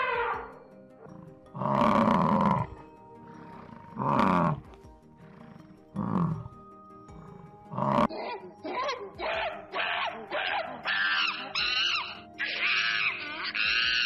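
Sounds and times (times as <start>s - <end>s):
quiet background music: 0.0s - 14.0s
cow mooing: 1.1s - 4.7s, 5.3s - 6.5s.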